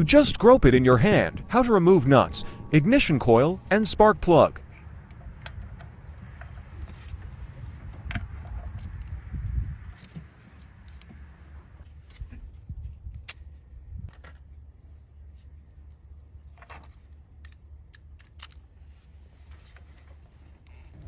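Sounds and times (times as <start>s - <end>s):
low handling rumble: 0.0s - 13.1s.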